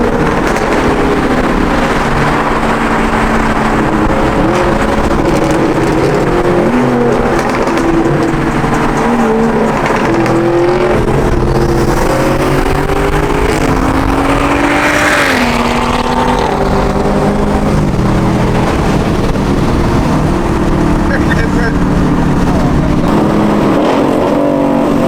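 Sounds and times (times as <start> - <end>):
car engines revving: 0.0 - 25.0.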